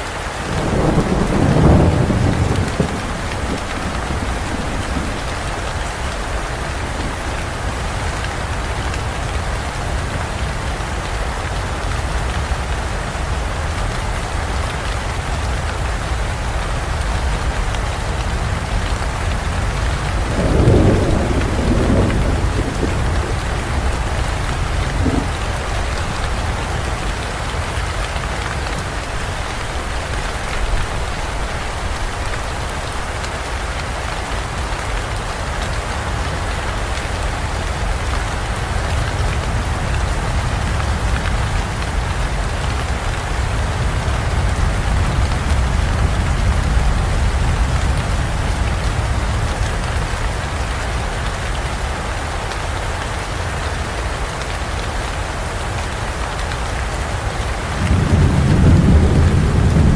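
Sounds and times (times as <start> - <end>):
heavy rain on foliage: 0.0 - 59.9
low thunder rumble: 0.5 - 10.7, 16.5 - 33.2, 37.2 - 50.3, 57.6 - 59.9.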